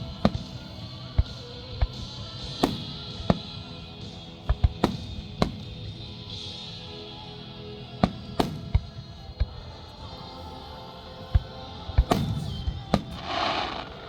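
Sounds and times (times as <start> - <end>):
fireworks bangs: 12.1 - 14.0.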